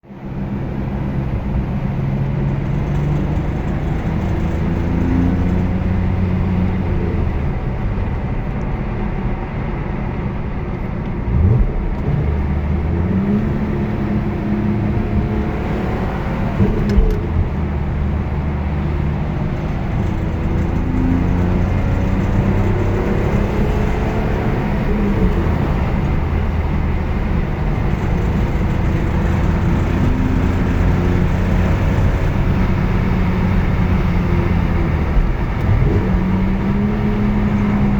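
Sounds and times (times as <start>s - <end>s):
car engine accelerating: 0.1s - 37.9s
rattle under acceleration: 0.1s - 37.9s.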